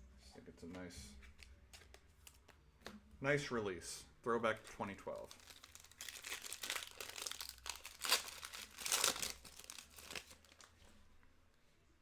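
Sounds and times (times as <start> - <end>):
plastic wrapper crinkling: 5.1 - 10.8.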